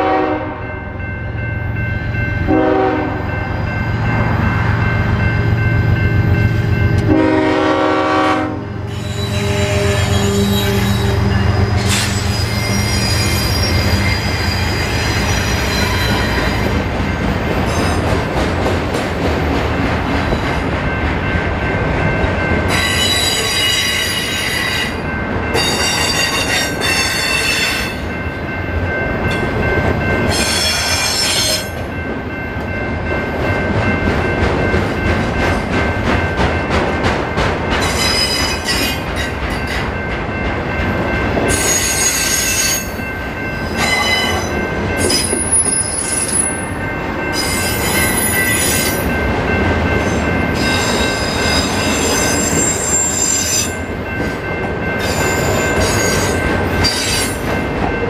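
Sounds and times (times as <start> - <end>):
diesel locomotive engine droning: 0.0 - 58.0
train wheels clattering on rail: 4.0 - 28.2, 29.2 - 58.0
wheels squealing: 8.9 - 16.4.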